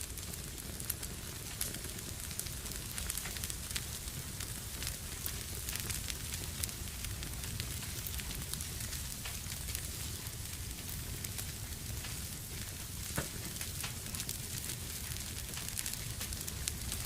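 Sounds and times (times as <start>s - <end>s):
wood fire crackling: 0.0s - 17.0s
loud fire pop: 13.0s - 13.6s.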